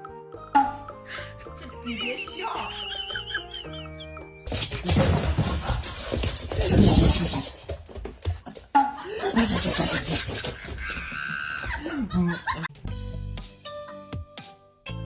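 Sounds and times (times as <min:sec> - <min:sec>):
people laughing: 0:01.5 - 0:05.6, 0:06.6 - 0:07.7, 0:08.4 - 0:12.7.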